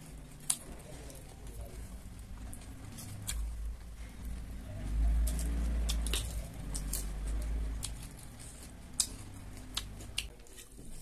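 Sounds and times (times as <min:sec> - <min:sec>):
crunchy chewing: 0:00.0 - 0:11.0.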